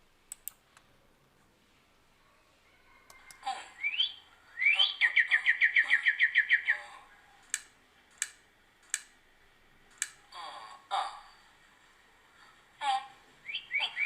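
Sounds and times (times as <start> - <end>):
mouse clicks: 0.3 - 0.6
bird call whistle and trill: 3.8 - 6.8, 13.4 - 14.0.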